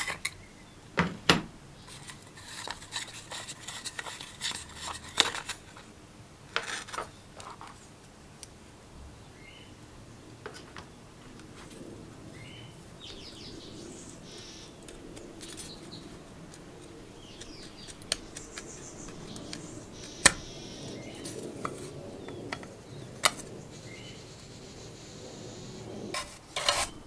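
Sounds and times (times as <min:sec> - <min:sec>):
birds chirping: 0:12.2 - 0:26.1
metal parts clicking and clinking: 0:14.8 - 0:20.5.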